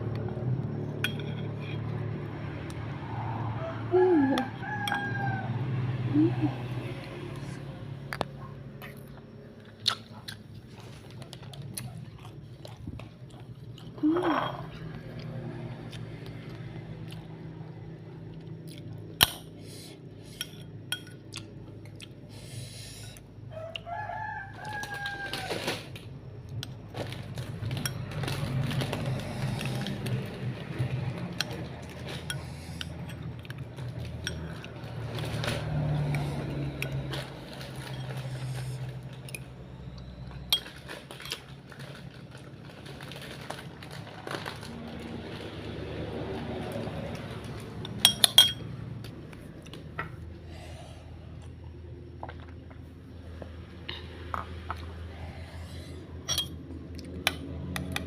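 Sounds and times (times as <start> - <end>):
low background hum: 0.0 - 58.0
rooster crowing: 2.8 - 6.2, 23.4 - 26.0.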